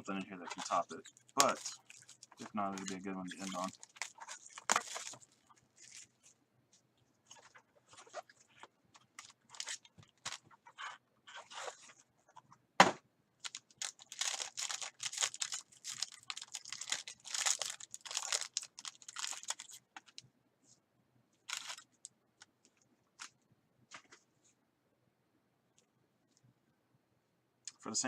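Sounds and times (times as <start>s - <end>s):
plastic wrapping crinkling and tearing: 0.0s - 6.4s, 7.3s - 12.0s, 13.4s - 20.2s, 21.4s - 22.1s.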